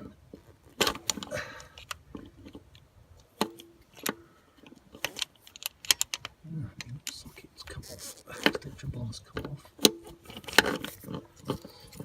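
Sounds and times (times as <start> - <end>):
metallic clicks of socket wrench: 5.0 - 7.2.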